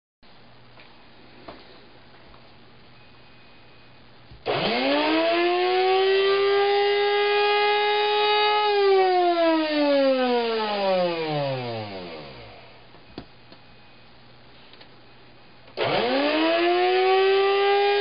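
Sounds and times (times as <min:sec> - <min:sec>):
coffee grinder motor whining: 0:04.4 - 0:08.3.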